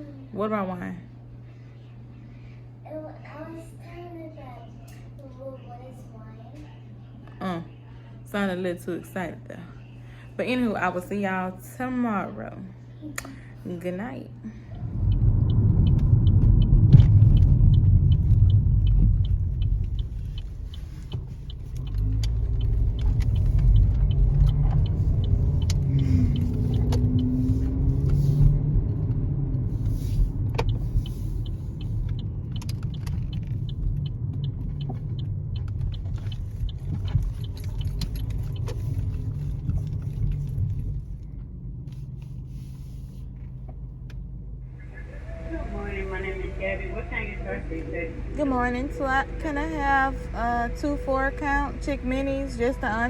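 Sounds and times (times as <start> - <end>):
car road rumble: 14.0 - 53.0.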